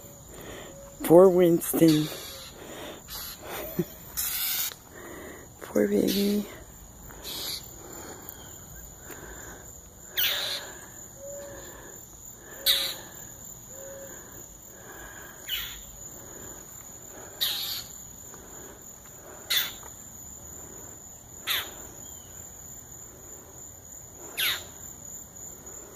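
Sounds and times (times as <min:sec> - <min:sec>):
bird scolding calls: 0:01.8 - 0:04.8, 0:07.2 - 0:07.7, 0:10.1 - 0:11.6, 0:12.6 - 0:13.1, 0:15.5 - 0:15.9, 0:17.4 - 0:18.0, 0:19.5 - 0:19.8, 0:21.4 - 0:21.8, 0:24.4 - 0:24.7.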